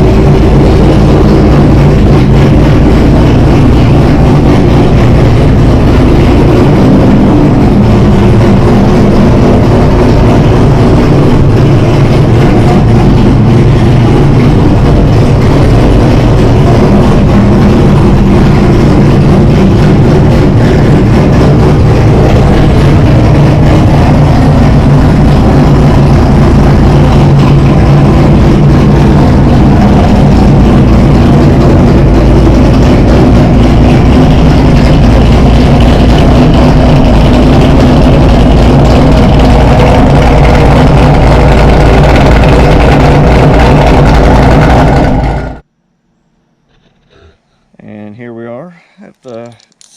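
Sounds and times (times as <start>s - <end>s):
car engine fast idle: 0.0s - 45.6s.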